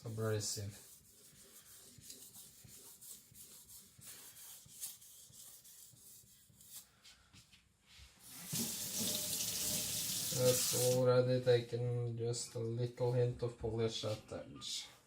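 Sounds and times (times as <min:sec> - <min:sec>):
water running: 0:08.2 - 0:11.0.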